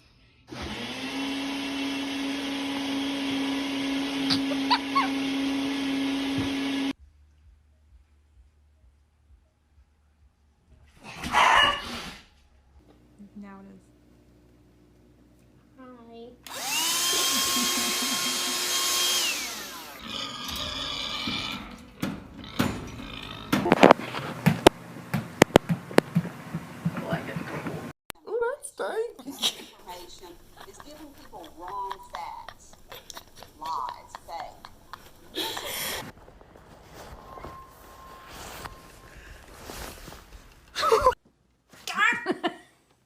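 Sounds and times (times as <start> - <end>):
electric motor humming: 0.5 - 7.0, 16.4 - 22.5, 29.8 - 36.1
small electric motor whining: 16.5 - 21.4.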